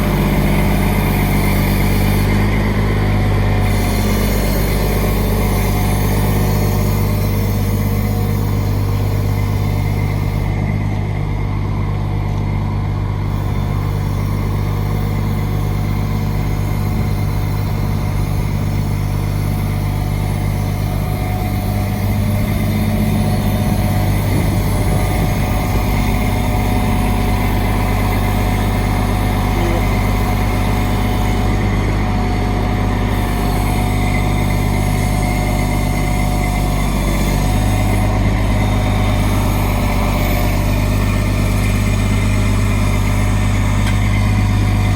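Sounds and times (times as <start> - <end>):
truck engine droning: 0.0 - 44.9.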